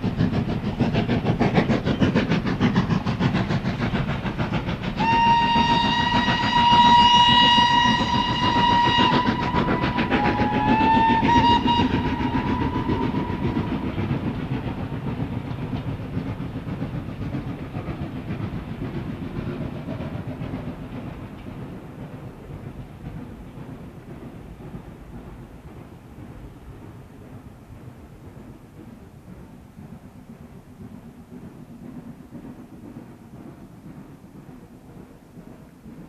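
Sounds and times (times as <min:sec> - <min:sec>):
steam locomotive exhaust beats: 0:00.0 - 0:36.0
steam train whistle: 0:05.0 - 0:14.0.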